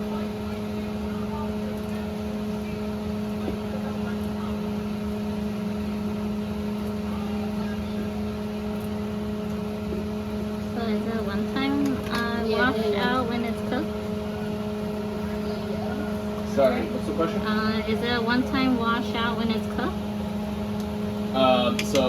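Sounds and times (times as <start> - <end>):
mechanical hum with a whir: 0.0 - 22.0.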